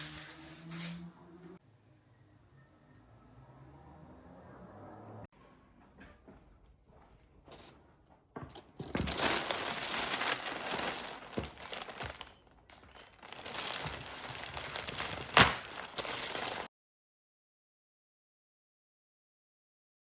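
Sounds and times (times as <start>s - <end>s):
wrapping crinkling and rustling: 8.5s - 16.7s.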